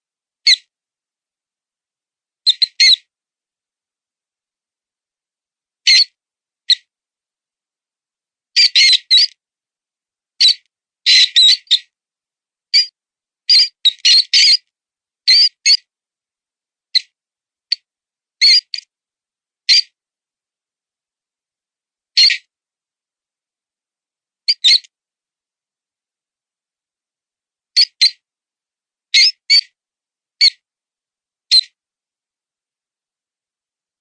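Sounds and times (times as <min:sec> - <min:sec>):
high-pitched mouse squeaks call: 0:02.5 - 0:03.0, 0:05.9 - 0:06.1, 0:08.6 - 0:09.4, 0:10.4 - 0:11.9, 0:13.5 - 0:14.6, 0:15.3 - 0:15.8, 0:18.4 - 0:18.8, 0:19.7 - 0:20.0, 0:22.2 - 0:22.5, 0:24.5 - 0:24.9, 0:27.8 - 0:28.2, 0:29.1 - 0:29.7, 0:30.4 - 0:30.6, 0:31.5 - 0:31.8.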